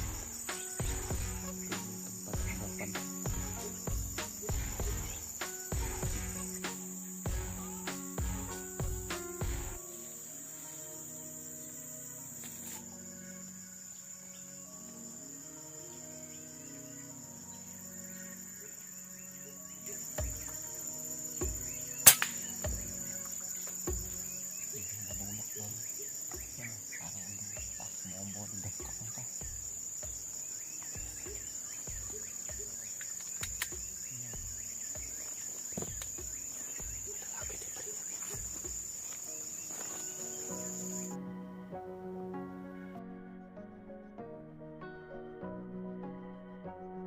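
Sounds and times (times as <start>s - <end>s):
high-pitched insect drone: 0.0s - 41.3s
soft background music: 0.0s - 47.0s
sharp click: 22.1s - 22.4s.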